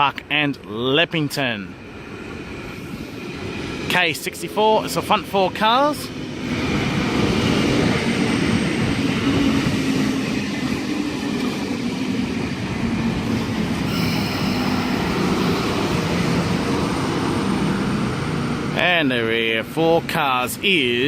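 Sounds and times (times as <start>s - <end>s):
train wheels rumbling on track: 1.7s - 21.0s
high thin squealing: 13.8s - 17.4s.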